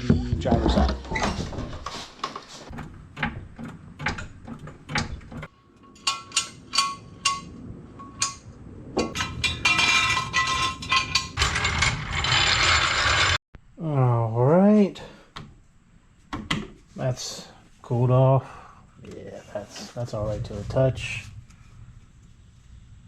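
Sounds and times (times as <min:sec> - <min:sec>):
metal objects clicking and clinking: 0:05.8 - 0:12.4.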